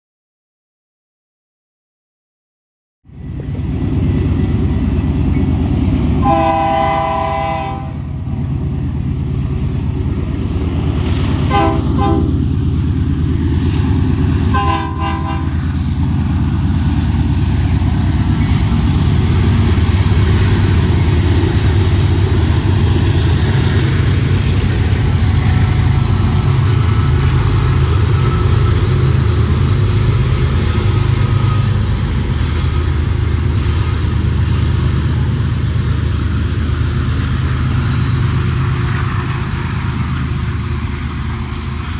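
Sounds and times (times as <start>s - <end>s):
freight train rumbling: 3.0s - 41.9s
train air horn blasts: 6.2s - 8.1s, 11.5s - 12.4s, 14.5s - 15.7s.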